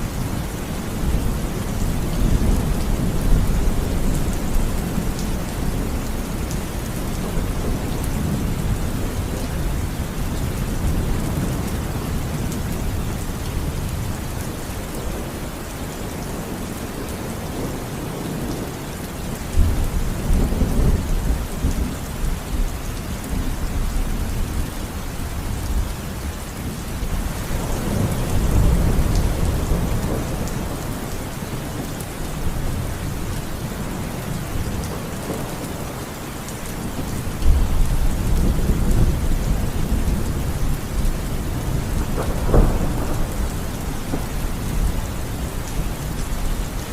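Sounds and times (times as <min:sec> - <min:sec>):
heavy rain: 0:00.0 - 0:46.9
rolling thunder: 0:37.0 - 0:46.9.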